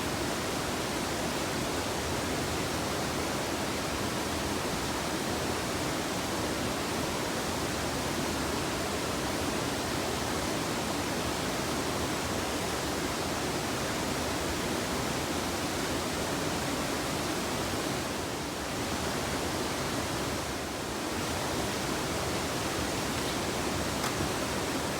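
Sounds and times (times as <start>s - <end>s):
river rapid rushing: 21.0s - 24.9s.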